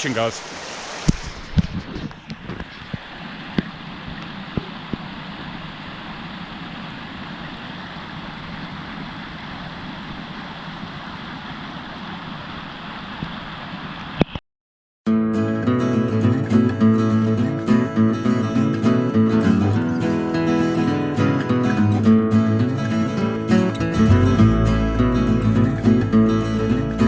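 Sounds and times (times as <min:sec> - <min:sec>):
stream running: 0:00.0 - 0:12.4
strummed acoustic guitar music: 0:15.1 - 0:27.0.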